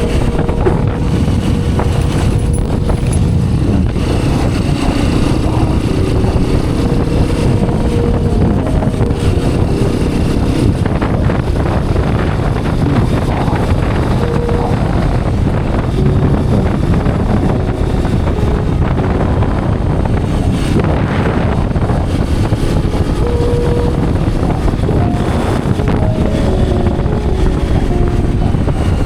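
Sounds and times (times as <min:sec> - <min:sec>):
motorcycle engine running: 0:00.0 - 0:29.0
wind noise on microphone: 0:00.0 - 0:29.0.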